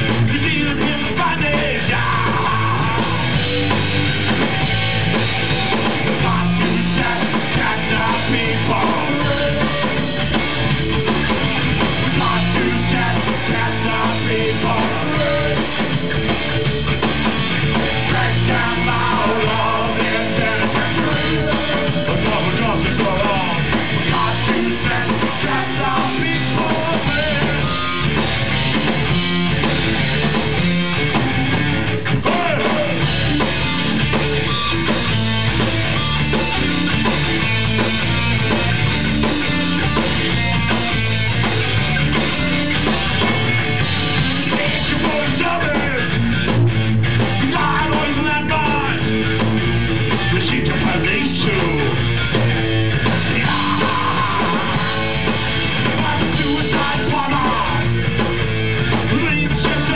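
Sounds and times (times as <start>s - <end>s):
punk rock band playing live: 0.0s - 59.9s.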